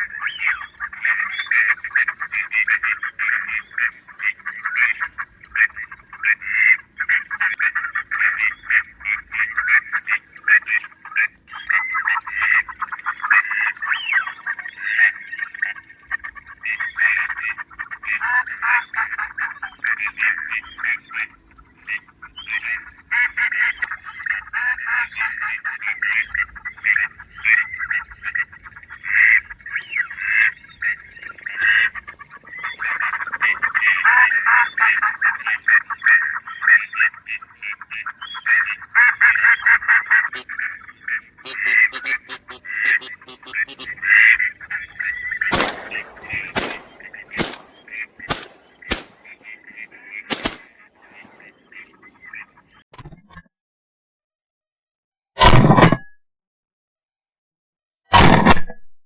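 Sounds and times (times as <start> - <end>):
ducks quacking: 0.0 - 52.8
shotgun shots: 41.5 - 43.9, 45.4 - 51.5.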